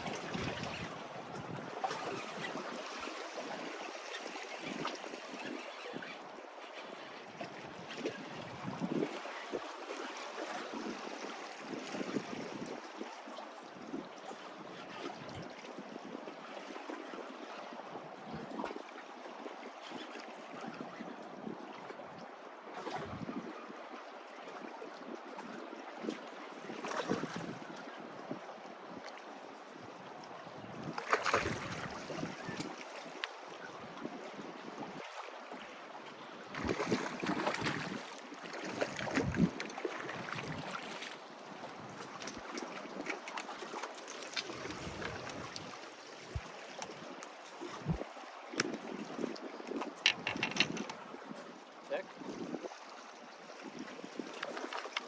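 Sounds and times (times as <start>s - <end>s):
small waves lapping on rocks: 0.0s - 23.6s, 24.2s - 55.0s
wind buffeting microphone: 22.9s - 23.6s, 38.7s - 40.9s, 44.6s - 52.8s
water splashes and drips: 36.5s - 50.9s.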